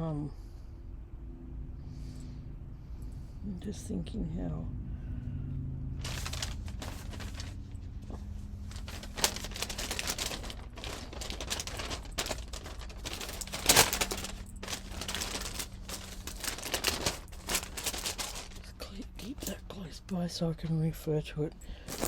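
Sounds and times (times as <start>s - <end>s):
clatter of craft materials: 6.0s - 19.6s
craft materials rustling and crinkling: 6.0s - 19.6s, 21.8s - 22.0s.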